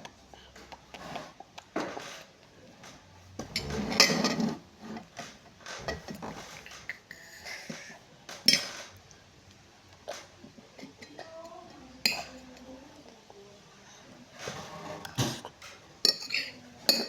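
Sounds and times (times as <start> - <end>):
cutlery and dishes clinking: 3.4 - 9.0, 14.4 - 17.0.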